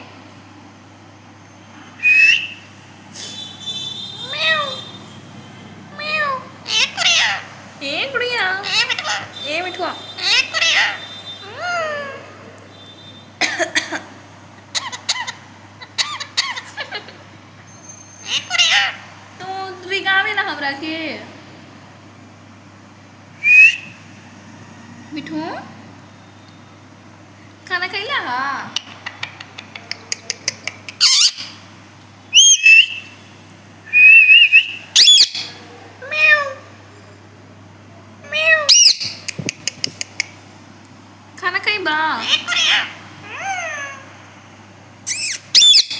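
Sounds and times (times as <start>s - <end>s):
parrot squawking: 2.0s - 2.6s, 3.3s - 5.0s, 5.9s - 7.6s, 8.2s - 12.3s, 14.7s - 17.2s, 18.2s - 19.0s, 23.4s - 23.9s, 28.8s - 31.6s, 32.3s - 33.2s, 33.9s - 36.7s, 38.2s - 40.3s, 42.1s - 44.2s, 45.1s - 45.9s.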